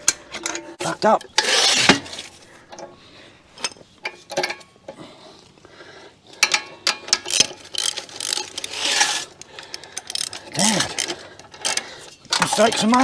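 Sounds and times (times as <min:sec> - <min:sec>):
metal tools clinking: 0:06.4 - 0:13.0.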